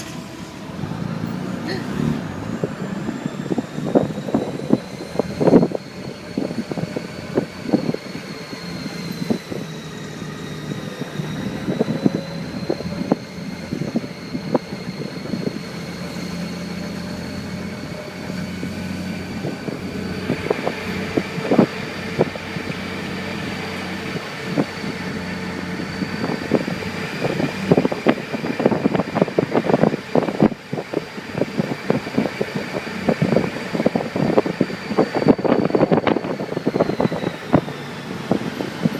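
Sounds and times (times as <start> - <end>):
motorcycle engine droning: 0.0 - 38.9.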